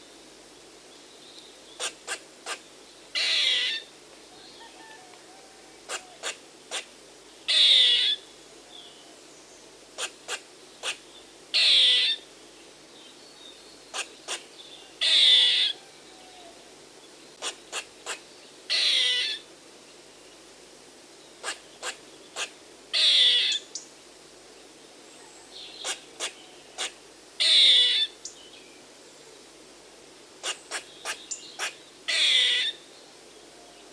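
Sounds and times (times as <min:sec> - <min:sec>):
squirrel alarm calls: 0:01.7 - 0:02.6, 0:03.2 - 0:03.9, 0:05.9 - 0:08.2, 0:10.0 - 0:12.2, 0:13.9 - 0:15.8, 0:17.4 - 0:19.4, 0:21.4 - 0:23.8, 0:25.7 - 0:28.4, 0:30.4 - 0:32.8.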